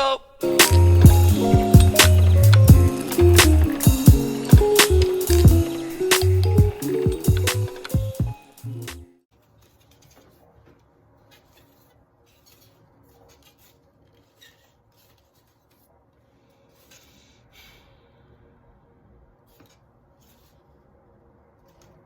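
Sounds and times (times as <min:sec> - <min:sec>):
small objects scraping and rustling: 0:09.3 - 0:18.2, 0:19.4 - 0:20.8.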